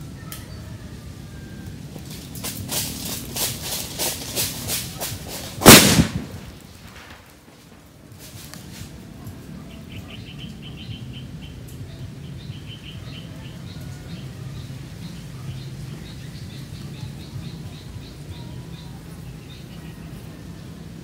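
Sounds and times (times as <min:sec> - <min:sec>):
sharp crack: 0:02.0 - 0:08.9
small birds chirping: 0:08.6 - 0:21.0.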